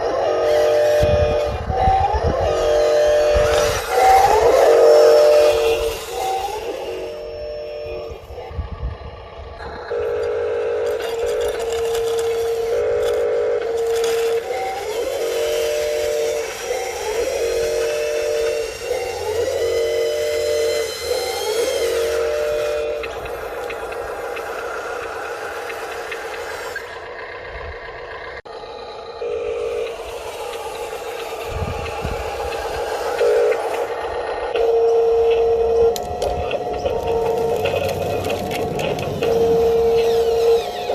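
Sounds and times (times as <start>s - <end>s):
electric motors whining: 0.0s - 40.9s
gravel scraping and rattling: 2.6s - 7.3s, 8.0s - 19.1s, 35.2s - 40.9s
gravel rattling: 35.2s - 40.9s.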